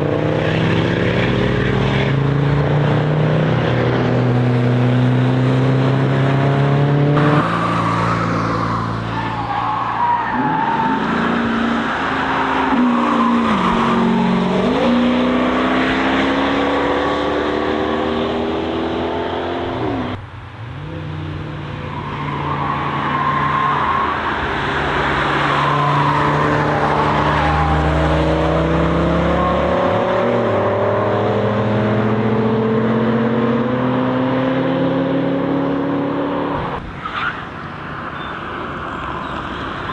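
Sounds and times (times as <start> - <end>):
car engines braking and accelerating: 0.0 - 39.9
tyres squealing: 7.2 - 14.9.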